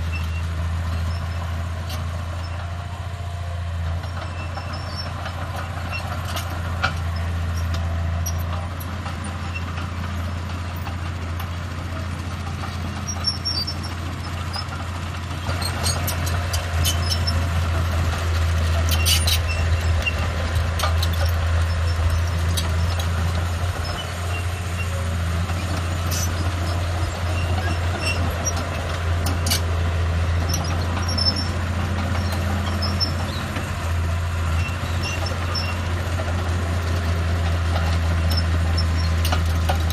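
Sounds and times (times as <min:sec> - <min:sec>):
diesel machinery engine running: 0:00.0 - 0:39.9
short metallic clanks: 0:18.8 - 0:21.4.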